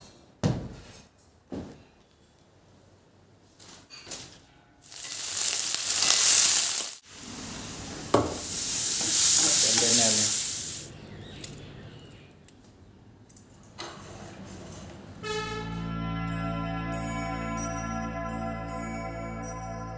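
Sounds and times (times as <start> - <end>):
food sizzling in hot oil: 4.8 - 10.9.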